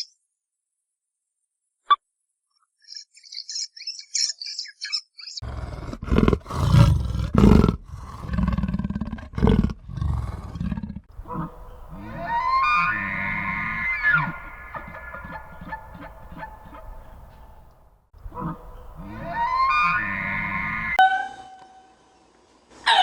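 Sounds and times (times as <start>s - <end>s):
small bird chirping: 0.0s - 0.2s, 2.6s - 5.4s, 11.1s - 21.0s
big cat roaring and growling: 5.4s - 21.0s.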